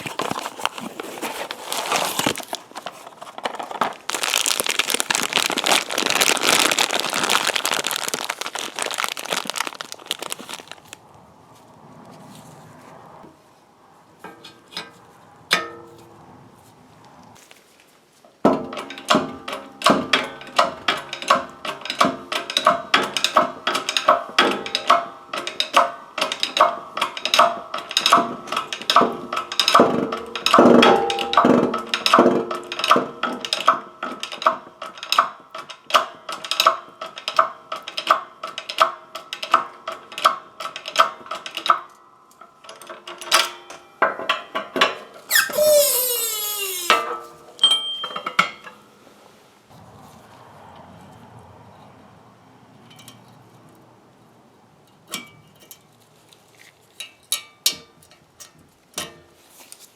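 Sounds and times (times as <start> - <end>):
brief falling squeal: 45.3 - 47.0.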